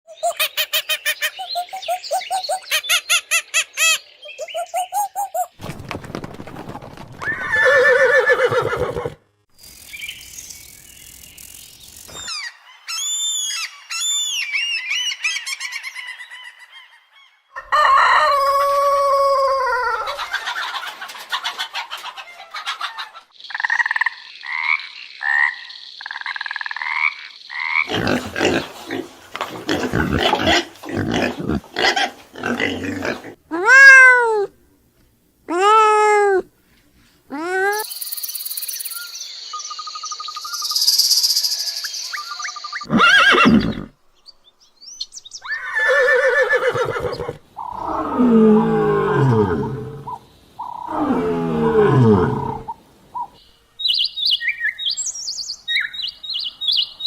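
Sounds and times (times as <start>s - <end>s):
chicken and fowl calls: 15.2s - 23.4s.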